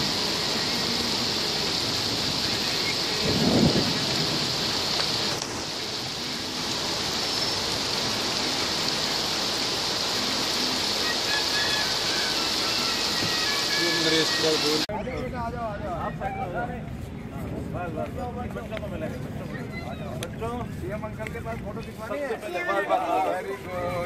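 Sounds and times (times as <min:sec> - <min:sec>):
heavy rain falling: 0:00.0 - 0:14.9.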